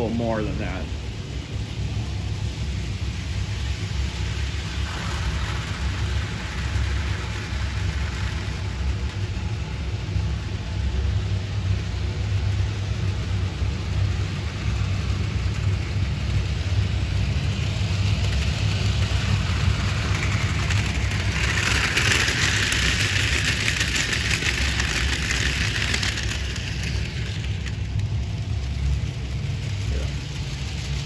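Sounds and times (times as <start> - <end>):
model train motor hum: 0.0 - 31.0
wheels hissing on rail: 0.0 - 31.0.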